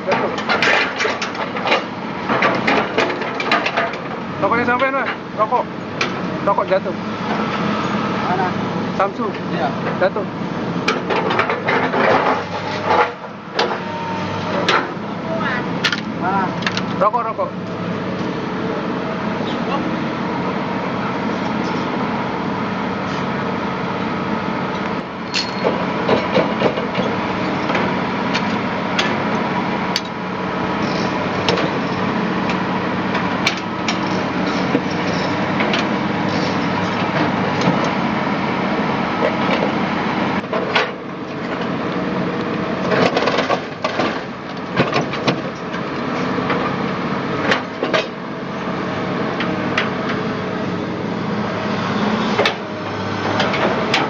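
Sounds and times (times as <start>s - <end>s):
knocks and clanks on metal track: 0.0s - 5.2s, 10.8s - 13.9s, 14.5s - 15.0s, 25.3s - 29.2s, 30.9s - 38.0s, 39.2s - 39.8s, 40.4s - 41.7s, 42.8s - 45.8s, 47.4s - 48.2s, 52.3s - 52.7s, 53.3s - 54.0s
engine running steadily: 0.0s - 54.0s.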